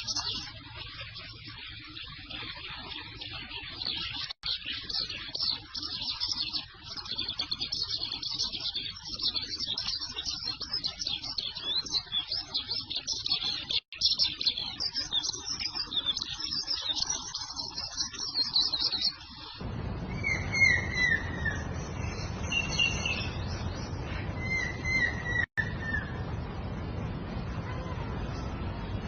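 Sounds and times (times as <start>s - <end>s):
songbirds twittering: 0.0s - 26.6s
low background rumble: 19.6s - 29.0s
bird giving falling chirps: 20.1s - 23.5s.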